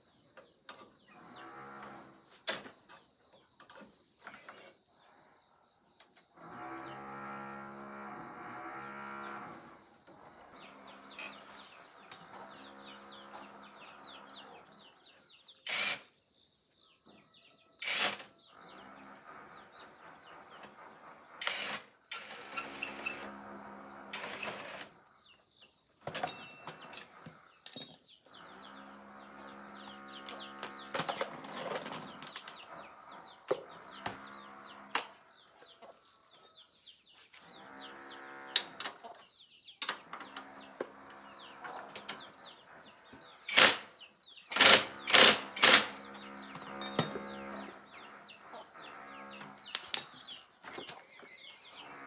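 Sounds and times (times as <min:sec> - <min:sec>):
small birds chirping: 0:10.1 - 0:21.4, 0:46.0 - 0:52.0
hand tools clicking on metal: 0:43.5 - 0:43.9, 0:44.5 - 0:46.0.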